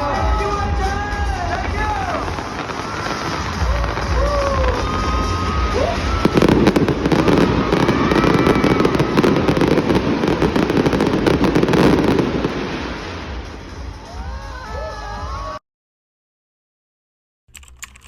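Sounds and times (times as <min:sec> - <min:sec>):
fireworks crackling and popping: 0:00.0 - 0:15.1.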